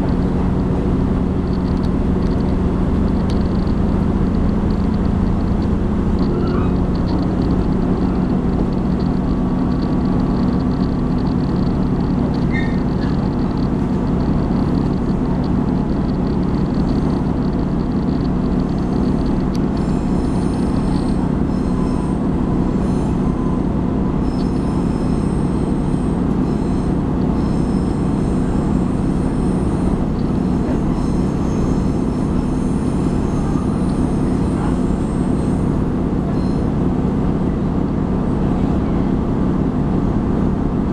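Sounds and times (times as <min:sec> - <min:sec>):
train rumbling on rails: 0:00.0 - 0:40.9
high-pitched wheel squeal: 0:03.4 - 0:10.0, 0:11.8 - 0:37.8.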